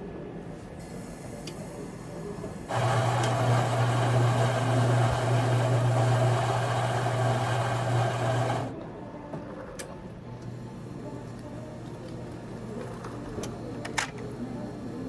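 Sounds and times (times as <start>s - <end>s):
motor appliance whirring hum: 2.7s - 8.8s.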